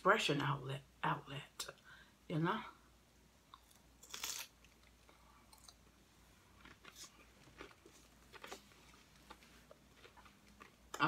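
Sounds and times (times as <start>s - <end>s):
crunching bite into chip: 3.7s - 4.8s.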